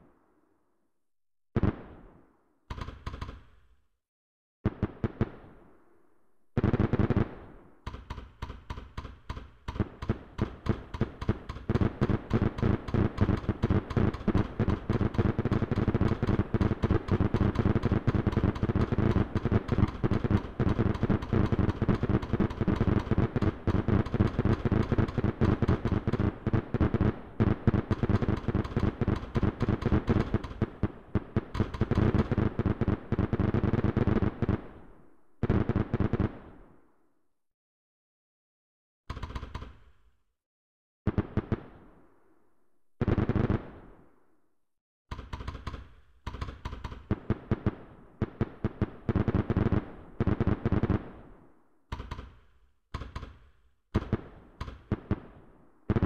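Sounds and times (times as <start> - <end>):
fireworks bangs and crackles: 1.6 - 3.5, 4.6 - 5.9, 6.6 - 36.8, 41.1 - 42.1, 43.0 - 44.0, 46.3 - 51.4, 54.0 - 56.0.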